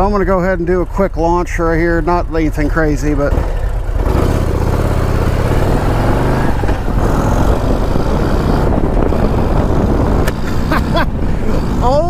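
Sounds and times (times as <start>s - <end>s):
motorcycle accelerating hard: 2.9s - 12.0s
loud rushing wind noise: 3.3s - 12.0s.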